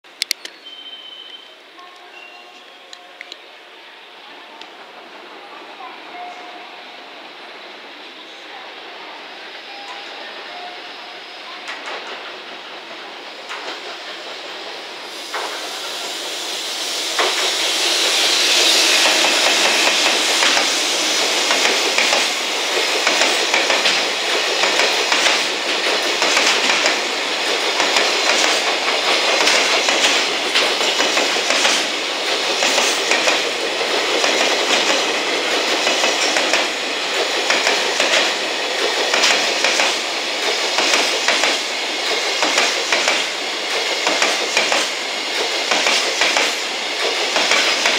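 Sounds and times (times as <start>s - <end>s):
electric locomotive passing: 0.4s - 47.9s.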